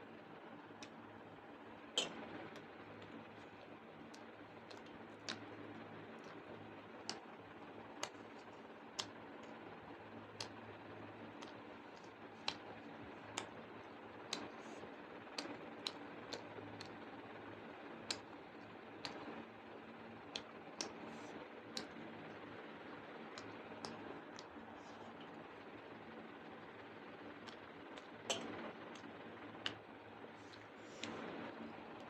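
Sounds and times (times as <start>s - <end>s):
faint steady hum: 0.0s - 32.0s
eating clicks: 2.0s - 7.3s, 8.0s - 9.6s, 11.3s - 17.0s.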